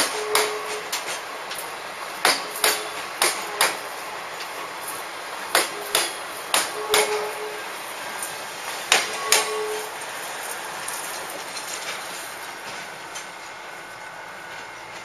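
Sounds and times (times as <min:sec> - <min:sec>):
train wheels knocking over rail joints: 0:00.0 - 0:04.5, 0:05.4 - 0:07.6, 0:08.2 - 0:13.6
wheel squeal: 0:09.1 - 0:12.0.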